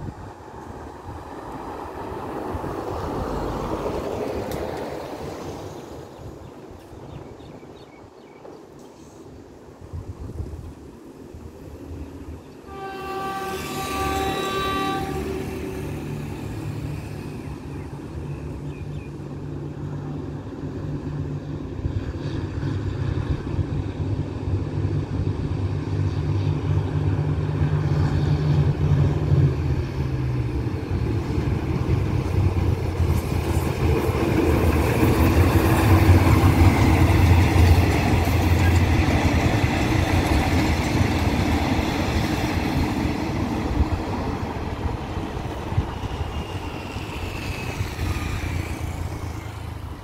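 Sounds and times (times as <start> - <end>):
diesel locomotive engine drone: 0.0 - 50.0
train wheels rumbling and rattling: 14.0 - 50.0.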